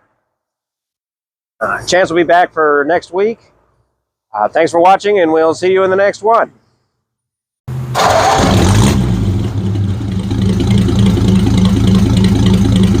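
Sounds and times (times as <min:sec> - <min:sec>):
pickup truck engine starting and idling: 0:07.7 - 0:13.0.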